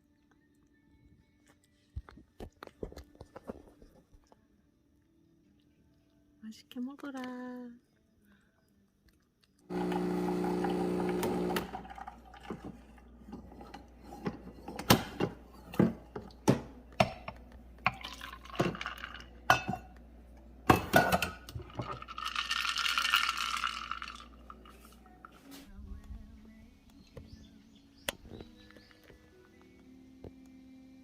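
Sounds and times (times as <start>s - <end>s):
liquid pouring: 9.7s - 14.5s, 17.8s - 19.5s, 21.4s - 25.3s
dishes clinking: 12.5s - 20.0s, 20.7s - 22.1s.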